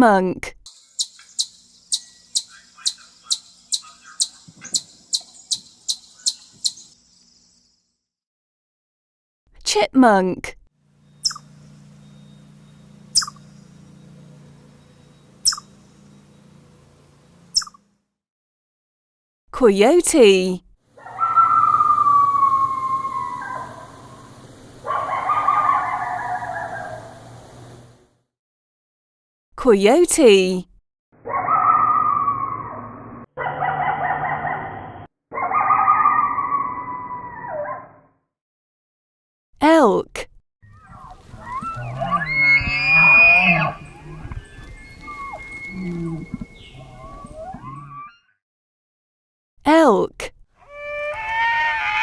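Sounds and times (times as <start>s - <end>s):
chipmunk chipping: 0.8s - 6.9s, 11.1s - 11.6s, 13.0s - 13.8s, 15.4s - 15.8s
coyote howling: 2.0s - 4.8s, 21.0s - 27.8s, 31.2s - 38.0s, 40.7s - 48.2s, 50.6s - 52.0s.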